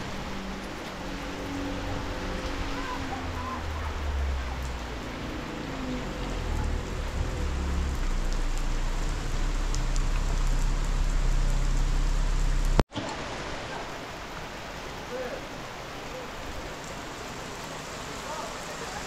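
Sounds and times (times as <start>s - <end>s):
steady rain on roofs: 0.0s - 19.0s
low rumble: 1.4s - 12.8s.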